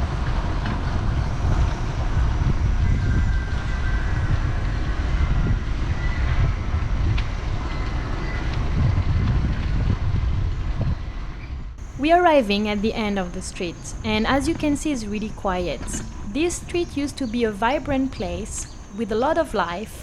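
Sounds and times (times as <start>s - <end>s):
wind buffeting microphone: 0.0s - 20.0s
road noise: 11.8s - 20.0s.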